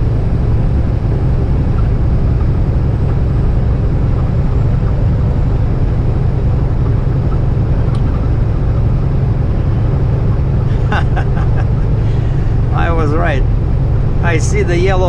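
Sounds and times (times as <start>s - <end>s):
truck diesel engine drone: 0.0s - 15.0s
road noise: 6.2s - 14.7s.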